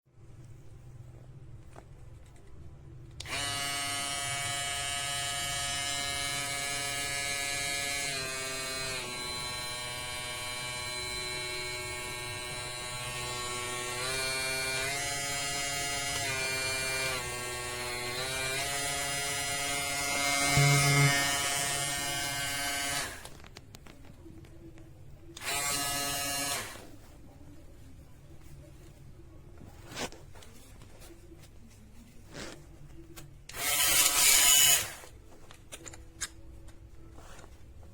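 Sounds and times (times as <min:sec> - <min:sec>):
electric shaver buzzing: 0:03.2 - 0:23.3, 0:25.4 - 0:26.8, 0:33.5 - 0:35.1.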